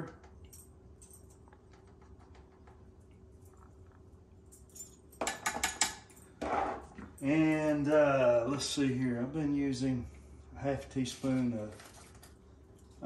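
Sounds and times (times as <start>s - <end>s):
rattling clinks: 4.5s - 6.3s.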